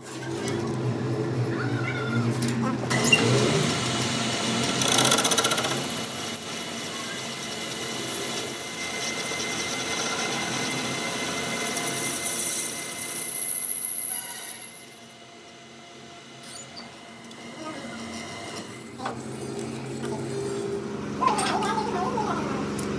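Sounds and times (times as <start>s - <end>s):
power tool whining: 2.9s - 15.2s.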